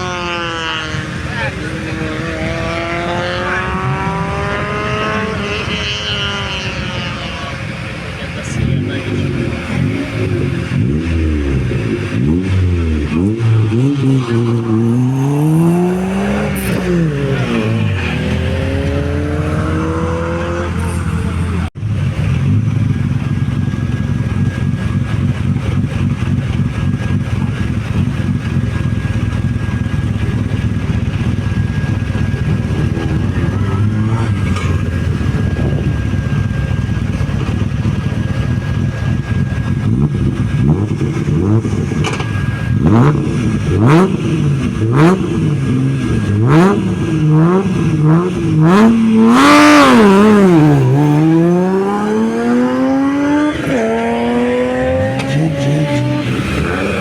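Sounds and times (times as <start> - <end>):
rally car engine revving: 0.0 - 57.0
exhaust pops: 24.6 - 51.2.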